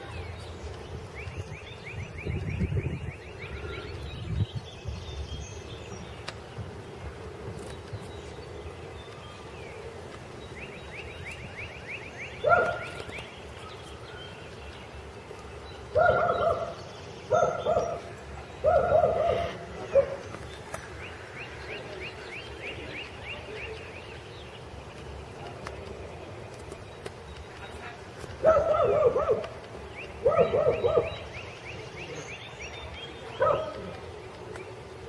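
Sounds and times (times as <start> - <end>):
loud pitched animal calls: 18.8 - 19.7.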